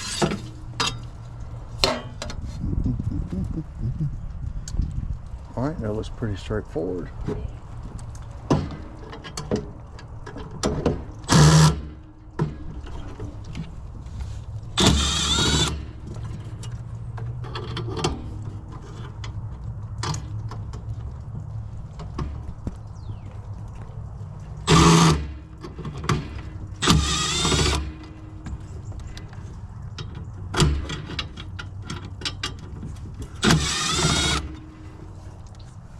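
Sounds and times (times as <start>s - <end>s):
power driver whirring: 14.8s - 15.9s, 24.7s - 25.4s, 26.8s - 28.2s, 33.4s - 34.8s
metal parts clicking and knocking: 24.7s - 34.7s.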